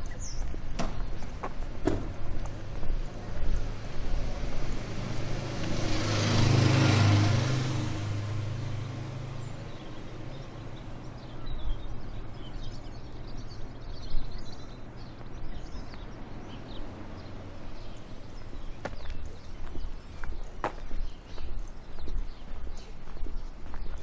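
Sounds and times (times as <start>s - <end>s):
footsteps: 0.0s - 6.7s, 17.8s - 24.0s
low engine hum: 0.0s - 23.5s
small birds chirping: 0.0s - 24.0s.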